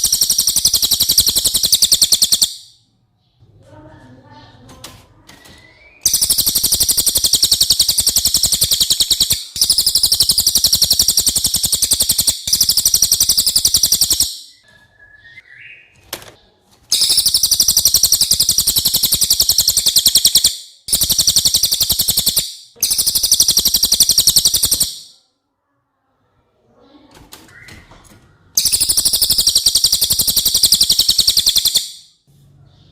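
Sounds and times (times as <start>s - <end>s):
bird singing rapid high trills: 0.0s - 2.8s, 5.8s - 14.6s, 16.9s - 25.1s, 28.6s - 32.2s.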